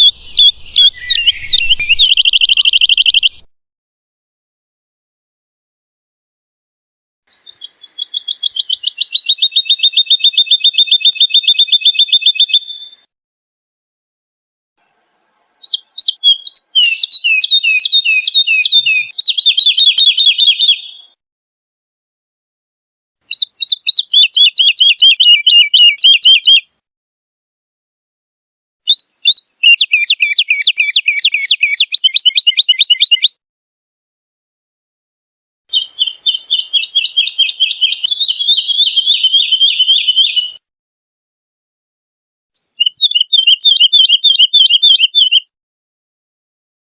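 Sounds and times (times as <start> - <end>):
bird singing trills: 0.0 - 3.5, 7.3 - 13.0, 14.8 - 21.2, 23.3 - 26.6, 28.9 - 33.3, 35.7 - 40.6, 42.6 - 45.5.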